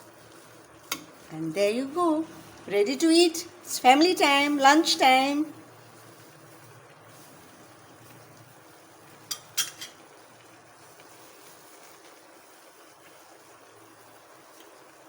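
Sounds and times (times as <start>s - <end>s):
faint room hum: 0.0s - 15.0s
utensil clinking against pot: 9.3s - 10.0s.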